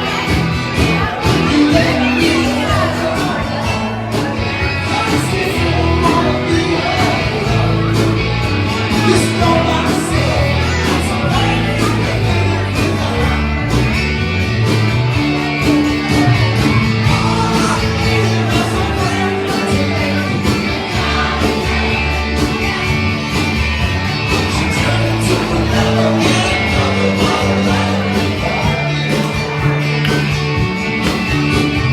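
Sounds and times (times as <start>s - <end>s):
person singing: 0.0s - 14.2s, 15.4s - 23.6s, 24.2s - 30.6s
live rock band playing: 0.0s - 31.9s.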